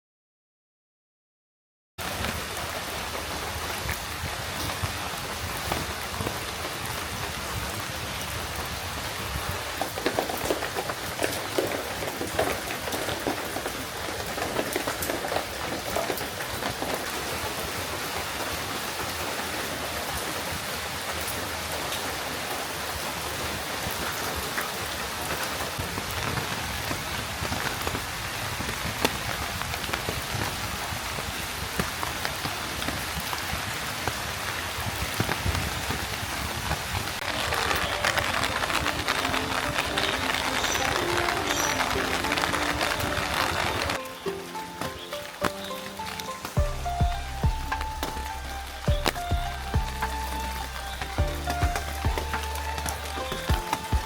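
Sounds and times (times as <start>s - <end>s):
steady rain falling: 2.0s - 54.0s.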